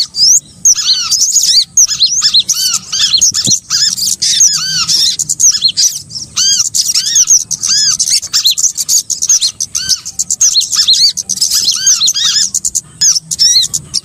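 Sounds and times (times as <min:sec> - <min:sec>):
small songbirds chirping: 0:00.0 - 0:14.0.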